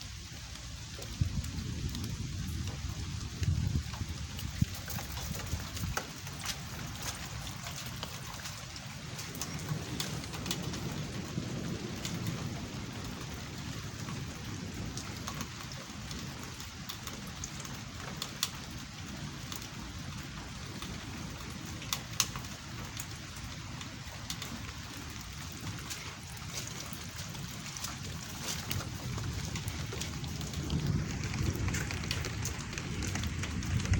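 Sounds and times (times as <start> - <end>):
heavy rain falling: 0.0 - 33.9
raindrops clicking close by: 0.0 - 33.9
low rumble: 23.8 - 33.9.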